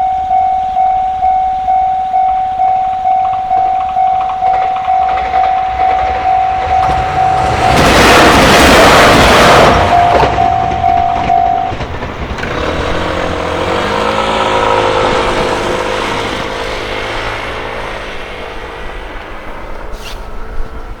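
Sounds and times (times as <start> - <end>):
level crossing alarm tone: 0.0 - 12.0
train rumbling: 0.0 - 21.0.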